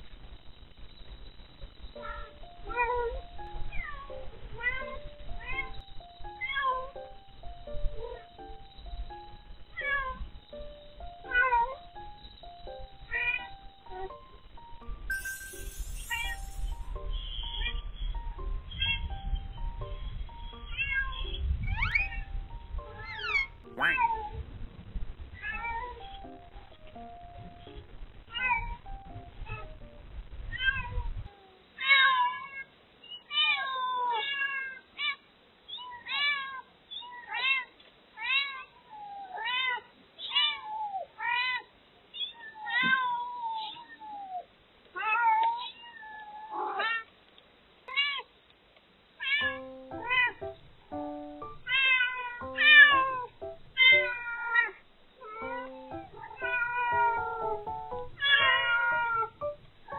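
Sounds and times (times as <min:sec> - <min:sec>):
simple background melody: 0:01.8 - 0:30.5, 0:49.4 - 0:59.9
cat meowing: 0:13.1 - 0:13.5, 0:20.7 - 0:22.2, 0:23.0 - 0:24.3, 0:31.8 - 0:44.4, 0:45.0 - 0:47.1, 0:49.2 - 0:50.4, 0:51.7 - 0:57.6, 0:58.2 - 0:59.4
kitten crying: 0:13.1 - 0:14.1, 0:20.7 - 0:22.2, 0:23.0 - 0:24.3, 0:35.7 - 0:44.4, 0:45.0 - 0:47.1, 0:49.2 - 0:50.5, 0:51.6 - 0:59.4.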